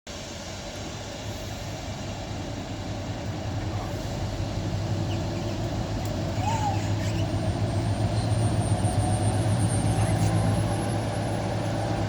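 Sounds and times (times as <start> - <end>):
diesel locomotive engine droning: 0.1 - 12.0.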